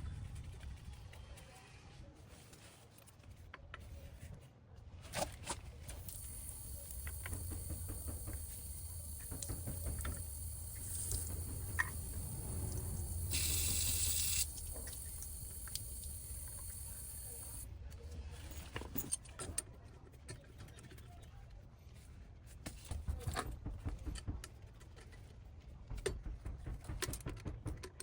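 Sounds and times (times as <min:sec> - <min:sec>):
clicks and knocks: 0:06.0 - 0:17.6
loud hiss: 0:06.0 - 0:17.7
steady high whine: 0:06.0 - 0:17.7
water running: 0:06.0 - 0:17.7.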